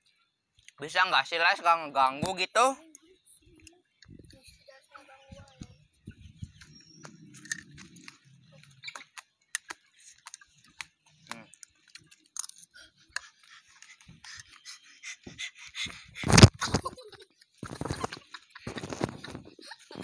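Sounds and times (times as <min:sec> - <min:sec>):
small clicks and taps: 0:05.4 - 0:12.6
person chewing food: 0:06.5 - 0:16.5.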